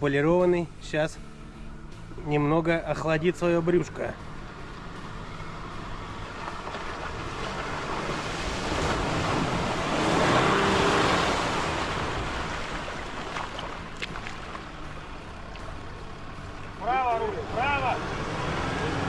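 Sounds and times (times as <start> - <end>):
car engine running: 0.0 - 19.0
water surging and splashing: 4.2 - 19.0.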